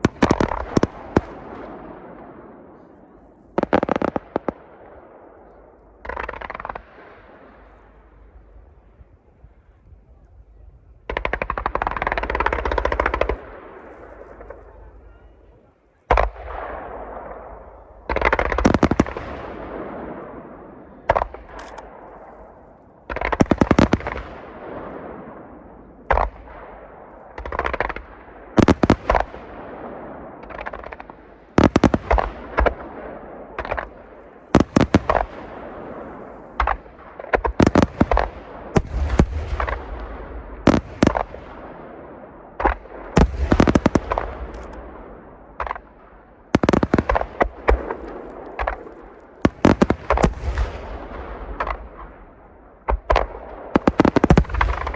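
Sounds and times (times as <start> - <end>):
firework shells bursting: 21.3 - 22.3, 43.2 - 44.9.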